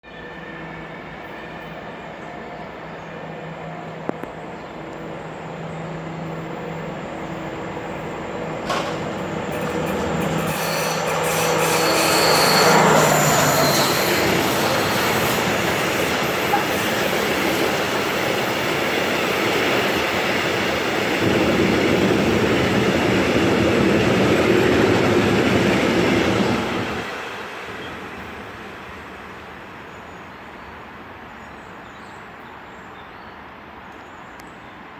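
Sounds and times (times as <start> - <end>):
locomotive engine drone: 0.1 - 29.9
wheels on rails: 8.6 - 20.7
wheel squeal: 9.5 - 17.1.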